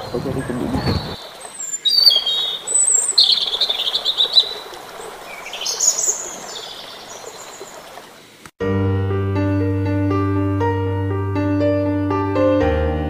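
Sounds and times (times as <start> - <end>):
birds chirping and calling: 0.0 - 8.4
steady outdoor hiss: 0.0 - 8.6
piano music: 8.6 - 13.0.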